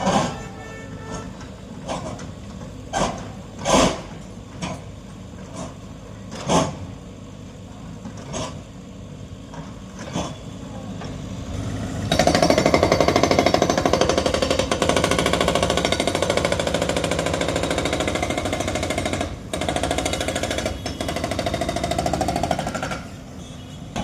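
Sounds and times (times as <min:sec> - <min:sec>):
demolition breaker hammering: 0:12.1 - 0:23.1.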